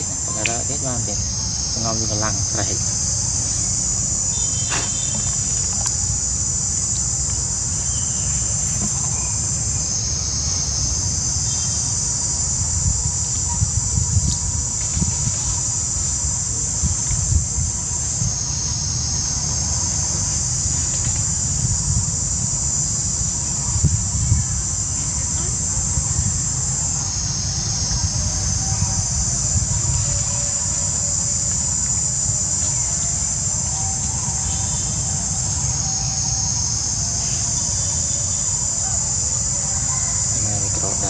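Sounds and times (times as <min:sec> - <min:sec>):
insects buzzing: 0:00.0 - 0:41.0.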